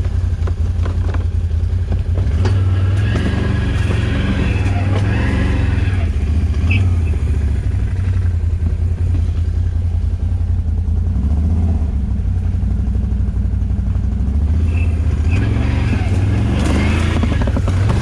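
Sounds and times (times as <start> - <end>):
rattles: 0.0 - 5.7, 14.6 - 18.0
atv engine running: 0.0 - 18.0.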